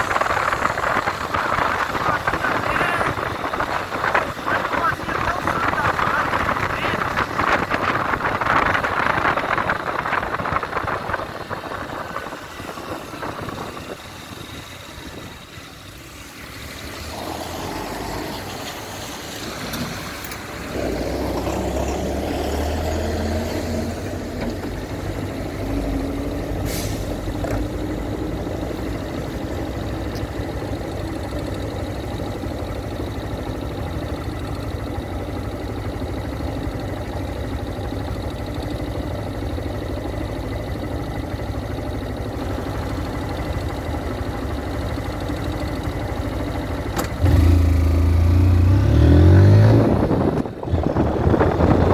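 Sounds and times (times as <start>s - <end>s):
wind and road noise: 0.0s - 51.9s
motorcycle engine idling: 24.2s - 48.7s.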